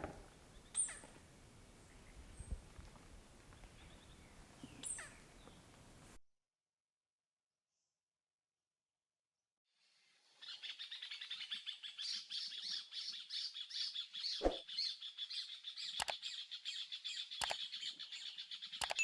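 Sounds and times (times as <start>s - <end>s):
birds chirping chorus: 0.0s - 6.2s
sharp click: 17.4s - 17.6s, 18.8s - 19.0s.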